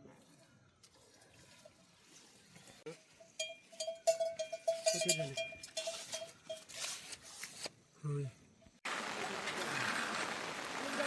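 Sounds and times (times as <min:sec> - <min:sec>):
small livestock bell ringing: 0:03.2 - 0:06.7.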